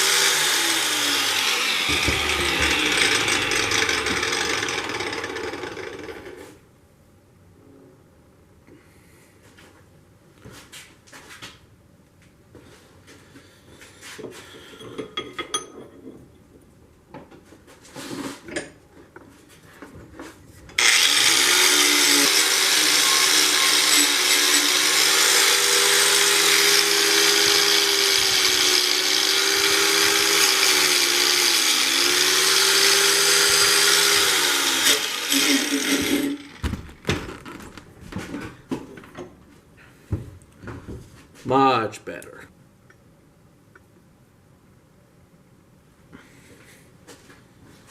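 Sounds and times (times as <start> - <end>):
power tool motor whirring: 0.0 - 6.4, 20.8 - 37.0
handling knocks and clicks: 36.6 - 39.4.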